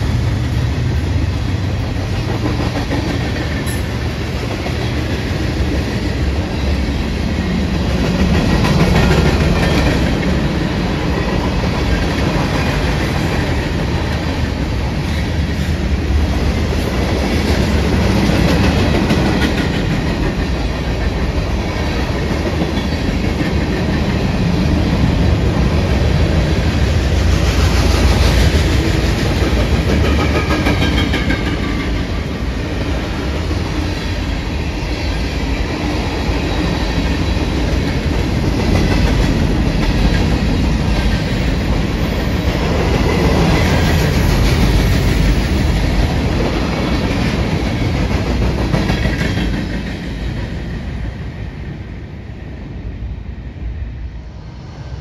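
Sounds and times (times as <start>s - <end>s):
freight train wheels rumbling: 0.0s - 55.0s
wheels clacking on rail joints: 16.8s - 32.2s.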